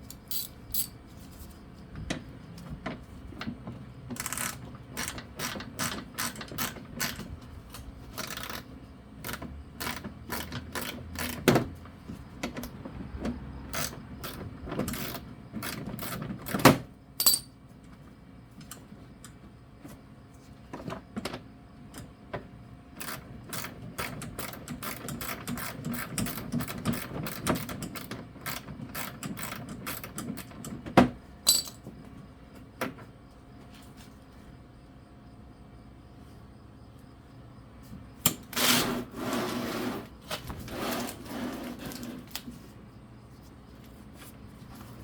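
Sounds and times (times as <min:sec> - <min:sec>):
metal parts clicking and clinking: 0:00.0 - 0:01.0, 0:17.2 - 0:17.5, 0:31.4 - 0:31.9.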